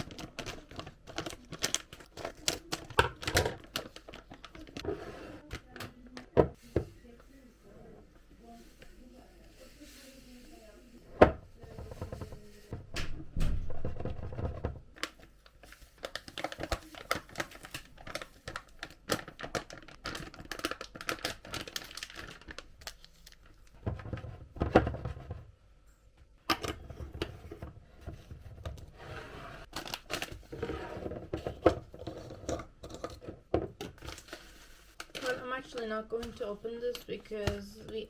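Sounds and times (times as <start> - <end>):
plastic packaging crinkling and tearing: 0.0 - 4.8, 14.9 - 23.8, 29.6 - 30.6, 33.9 - 36.5.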